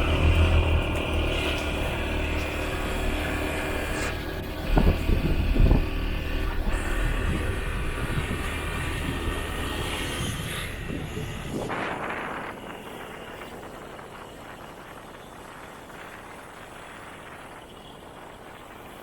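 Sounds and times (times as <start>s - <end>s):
motorbike engine: 0.0s - 15.2s
road and wind noise: 0.0s - 19.0s.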